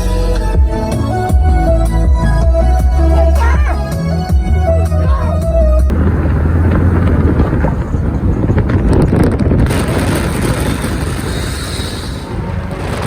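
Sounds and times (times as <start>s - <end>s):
car engine rumbling: 0.0s - 13.0s
wind buffeting microphone: 0.1s - 13.0s
bright hiss: 11.0s - 12.5s.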